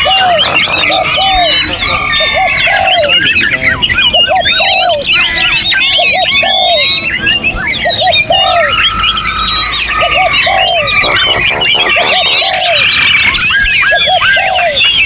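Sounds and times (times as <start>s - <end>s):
songbirds singing in chorus: 0.0s - 15.0s.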